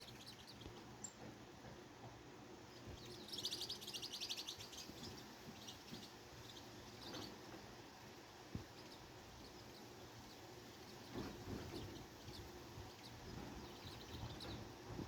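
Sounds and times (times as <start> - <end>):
faint bird chirps: 0.0 - 1.2, 2.7 - 7.6, 8.6 - 14.7
songbird trilling: 3.0 - 7.4.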